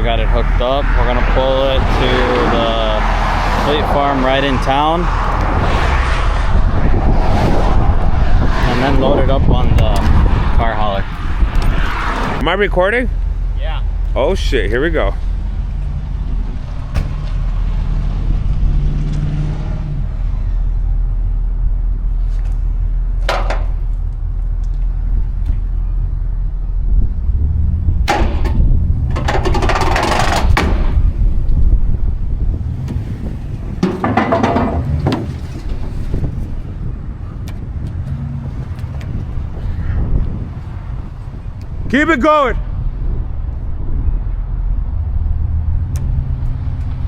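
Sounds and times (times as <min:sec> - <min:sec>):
low engine and road rumble: 0:00.0 - 0:47.0.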